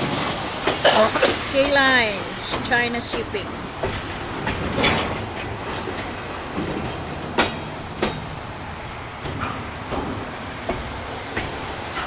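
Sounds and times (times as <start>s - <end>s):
freight train rolling past: 0.0s - 12.0s
sharp knocks of train cars: 0.0s - 12.0s.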